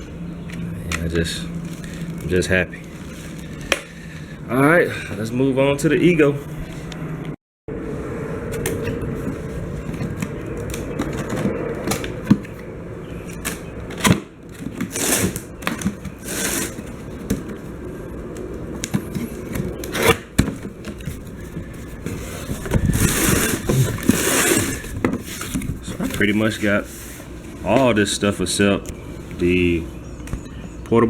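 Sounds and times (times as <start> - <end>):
packaging rustling: 0.5 - 4.4, 13.4 - 27.8
handling clicks knocks and scrapes: 13.3 - 27.9.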